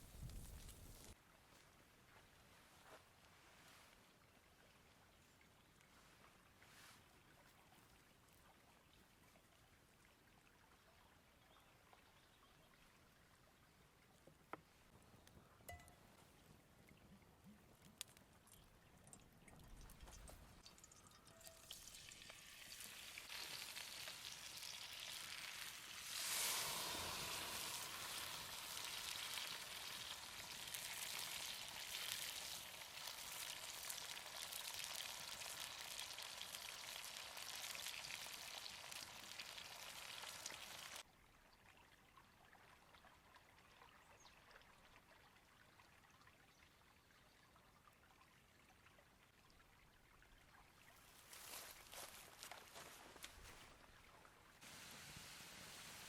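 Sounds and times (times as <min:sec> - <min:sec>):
steak sizzling in hot fat: 0:21.5 - 0:41.0, 0:54.7 - 0:56.0
faint background hiss: 0:51.1 - 0:56.0.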